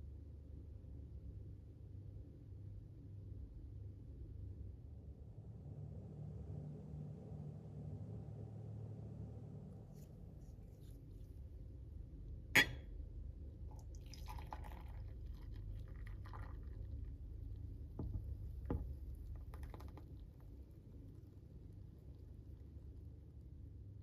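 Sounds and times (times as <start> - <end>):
glassy clink: 12.6 - 12.9
liquid pouring into glass: 13.6 - 20.4.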